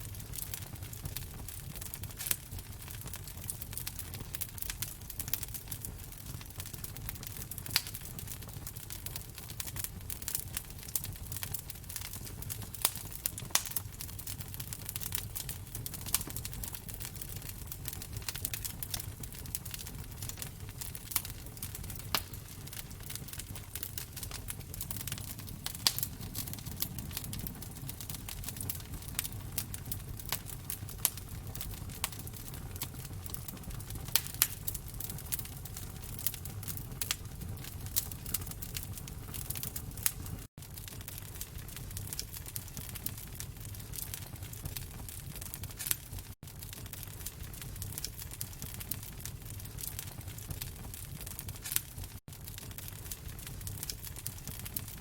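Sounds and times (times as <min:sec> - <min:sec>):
wood fire crackling: 0:00.0 - 0:55.0
sharp fire pops: 0:00.1 - 0:55.0
low steady rumble: 0:21.8 - 0:30.4.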